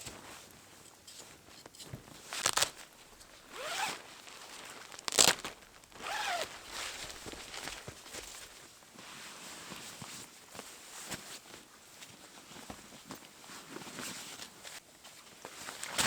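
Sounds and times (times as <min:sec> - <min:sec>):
zipper being pulled: 0:02.4 - 0:07.8.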